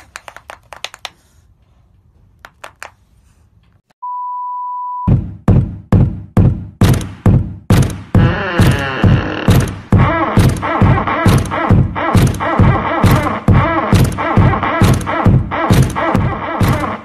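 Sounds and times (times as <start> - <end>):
test-tone beep: 4.0 - 5.1
heavy thumping music beat: 5.1 - 17.0.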